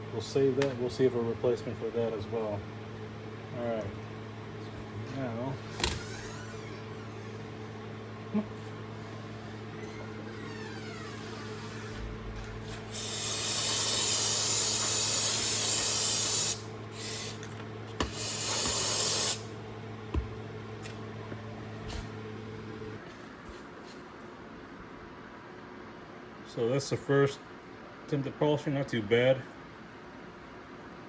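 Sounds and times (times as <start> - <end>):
power tool motor hum: 12.8 - 19.5.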